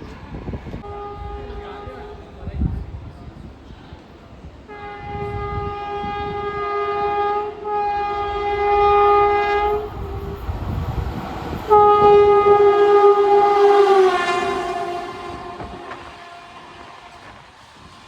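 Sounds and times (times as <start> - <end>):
low rumble of train: 0.0 - 18.0
locomotive horn blasts: 0.8 - 2.4, 4.7 - 10.6, 11.7 - 17.5.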